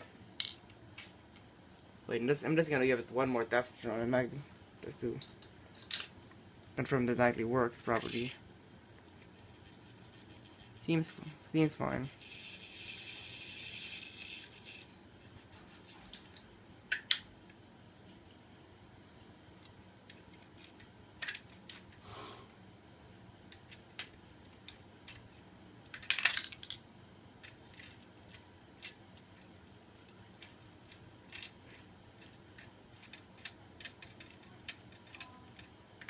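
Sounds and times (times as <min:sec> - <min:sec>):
faint hiss: 0:22.0 - 0:22.8
plastic fan parts clicking: 0:25.9 - 0:26.8, 0:27.4 - 0:36.0.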